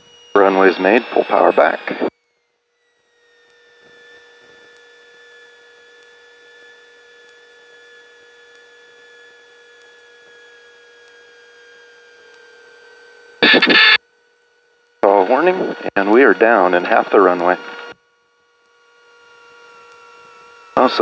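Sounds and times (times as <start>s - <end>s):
whine falling in pitch: 0.4s - 2.1s, 13.4s - 14.0s, 15.0s - 17.9s.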